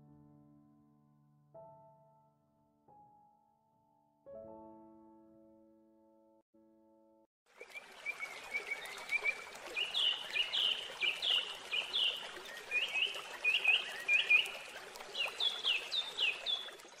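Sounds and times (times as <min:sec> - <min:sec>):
songbird chirping: 0:07.8 - 0:16.8.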